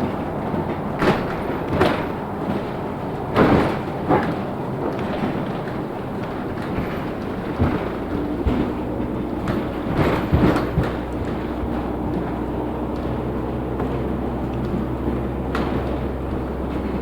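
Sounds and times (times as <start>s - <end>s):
bus cabin rumble: 0.0s - 17.0s
thuds and knocks from bus body: 0.0s - 17.0s.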